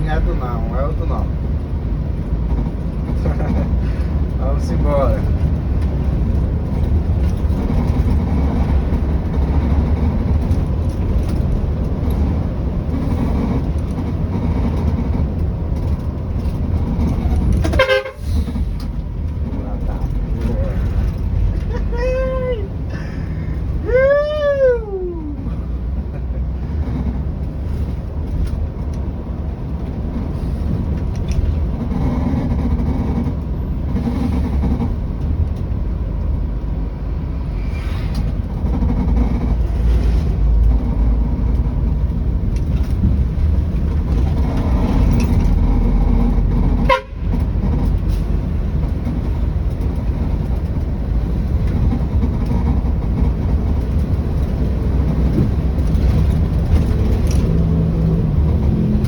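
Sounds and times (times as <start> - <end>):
bus diesel engine running: 0.0 - 59.0.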